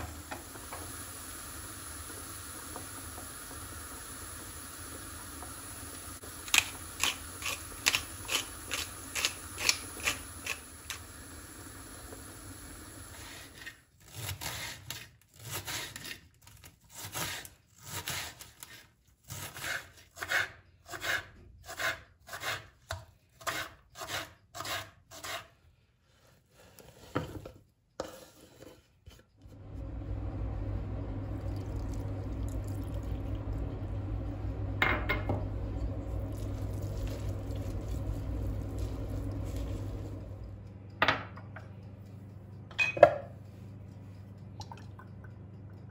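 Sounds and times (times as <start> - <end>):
low hum: 29.4 - 45.9.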